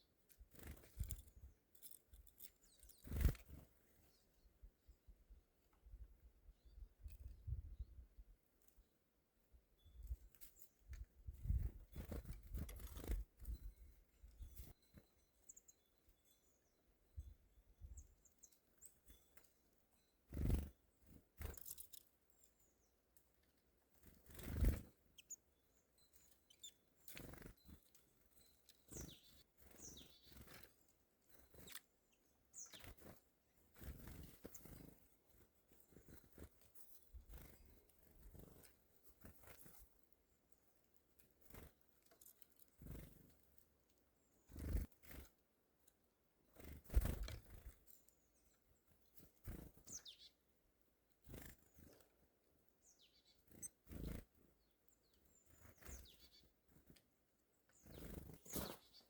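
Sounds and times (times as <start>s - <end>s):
small birds chirping: 0.0s - 59.0s
rustles: 26.0s - 43.7s, 55.0s - 59.0s.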